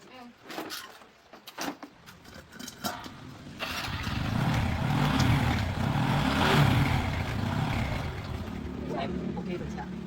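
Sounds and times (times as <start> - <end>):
motorcycle engine running: 3.6 - 8.9.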